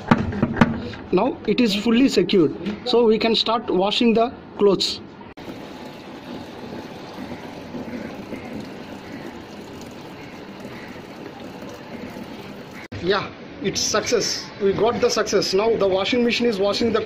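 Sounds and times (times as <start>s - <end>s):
water pouring into washing machine: 5.4s - 12.9s.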